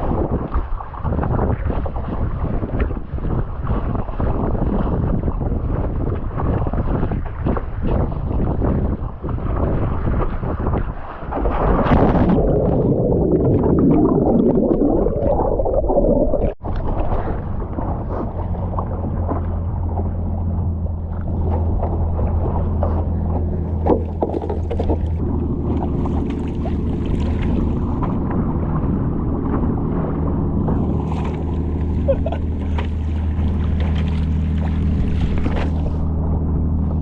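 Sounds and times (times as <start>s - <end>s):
water splashes and knocks: 0.0s - 14.8s, 16.5s - 28.5s, 30.6s - 37.0s
wind on microphone: 0.0s - 37.0s
water rushing: 11.2s - 37.0s
steady low hum: 16.6s - 37.0s.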